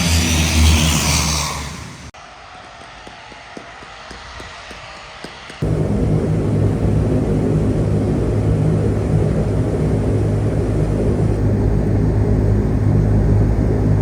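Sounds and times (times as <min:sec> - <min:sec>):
turboprop engines droning: 0:05.6 - 0:14.0.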